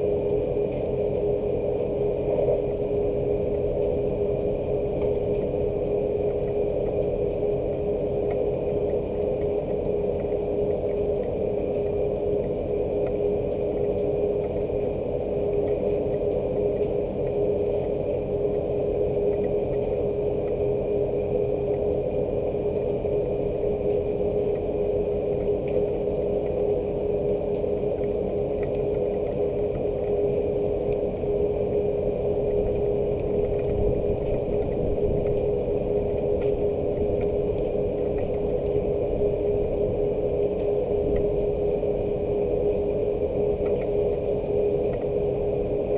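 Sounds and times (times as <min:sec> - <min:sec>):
constant hum: 0:00.0 - 0:45.9.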